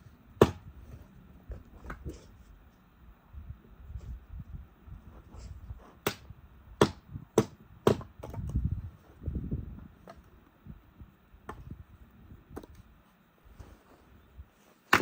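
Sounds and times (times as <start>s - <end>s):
low rumbling shuffle: 0.6s - 7.3s, 8.3s - 14.9s
sharp knocks on wood: 6.8s - 8.5s.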